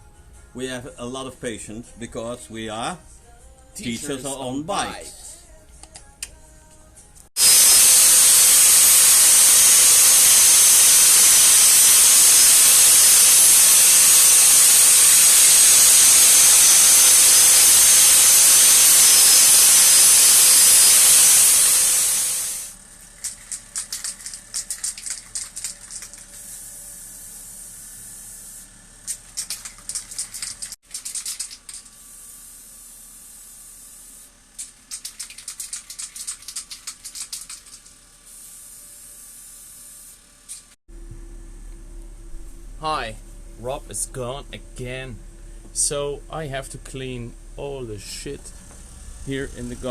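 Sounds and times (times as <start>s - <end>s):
compressed-air jet hissing: 7.4s - 40.8s.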